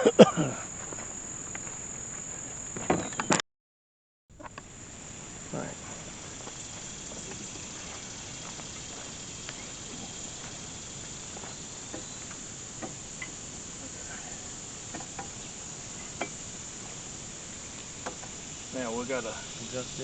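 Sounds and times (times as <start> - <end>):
crickets chirping: 0.0 - 3.4, 4.3 - 20.0.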